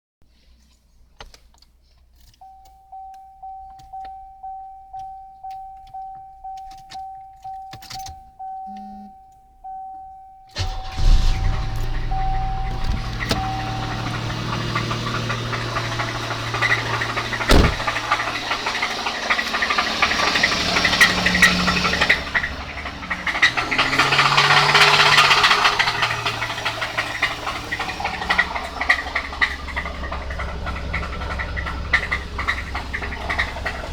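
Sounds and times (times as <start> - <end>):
car warning chime pinging: 2.3 - 33.9
car engine knocking clatter: 10.6 - 33.9
sharp bang: 10.7 - 18.6.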